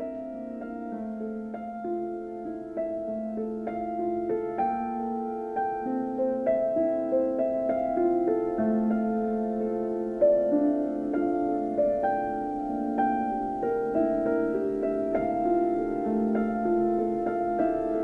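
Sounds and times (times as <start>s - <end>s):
slow gentle piano piece: 0.0s - 18.0s.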